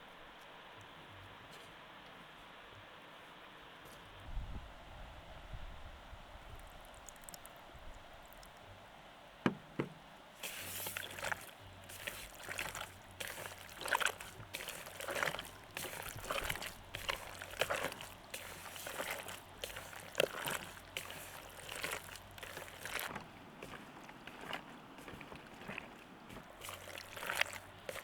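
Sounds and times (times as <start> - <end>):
water sloshing and splashing: 6.5 - 8.7, 9.5 - 28.0.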